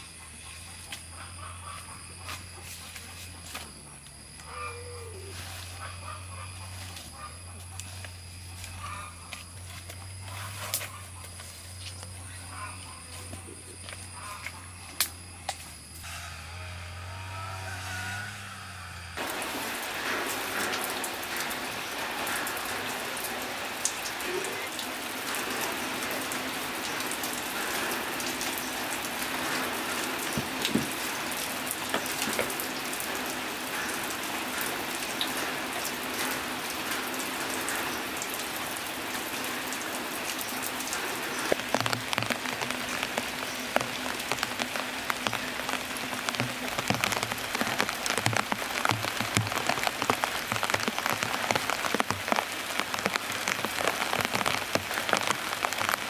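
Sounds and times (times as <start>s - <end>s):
steady rain on leaves: 0.0s - 18.5s, 19.2s - 56.0s
low hum: 15.4s - 20.4s
knocks and thumps: 30.3s - 31.0s.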